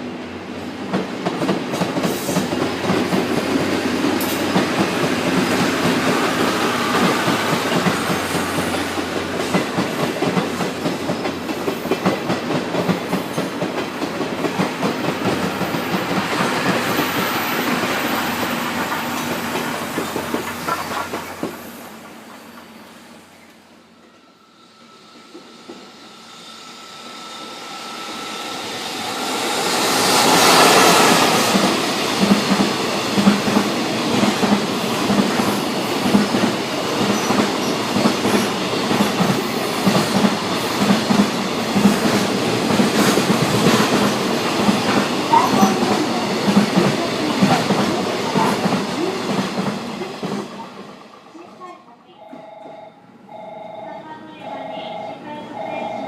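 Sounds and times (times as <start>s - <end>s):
electric locomotive passing: 0.0s - 56.0s
wheels clacking over rail joints: 0.9s - 22.8s.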